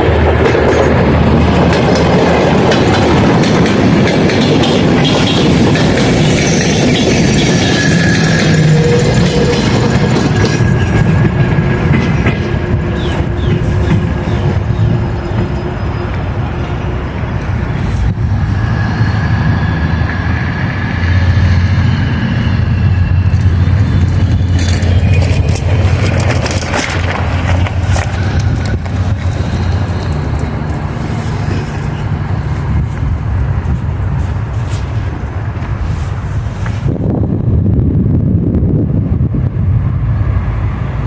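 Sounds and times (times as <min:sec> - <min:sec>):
train engine rumble: 0:00.0 - 0:41.0
clicks and rattles: 0:24.1 - 0:30.8.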